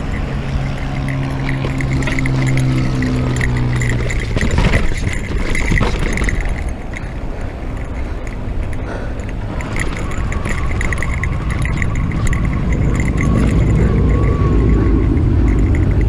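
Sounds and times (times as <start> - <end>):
tyre and trail rumble: 0.0 - 16.0.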